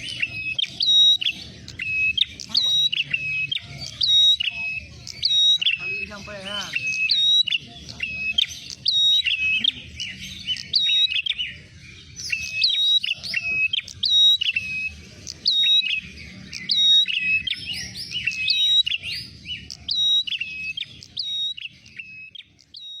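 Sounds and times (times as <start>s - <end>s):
bird chirps and whistles: 0.0s - 23.0s.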